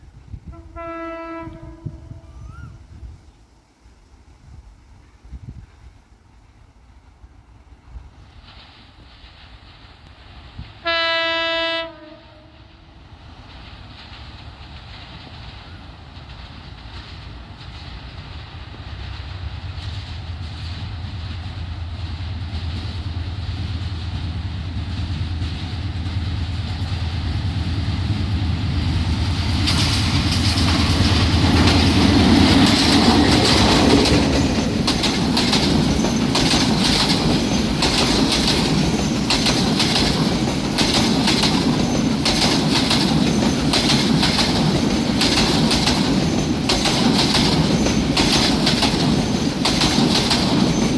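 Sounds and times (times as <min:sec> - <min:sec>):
diesel locomotive engine hum: 0:00.0 - 0:50.9
train wheels clacking over rail joints: 0:13.1 - 0:50.9.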